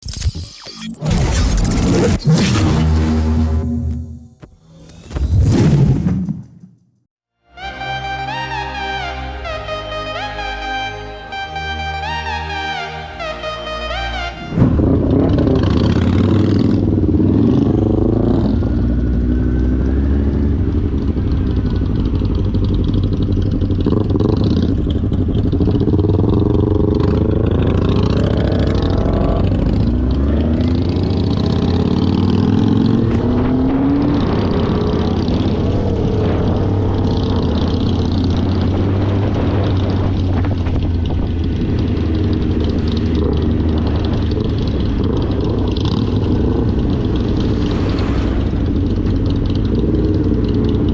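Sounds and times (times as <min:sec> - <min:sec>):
motorcycle engine accelerating: 0:13.2 - 0:50.9.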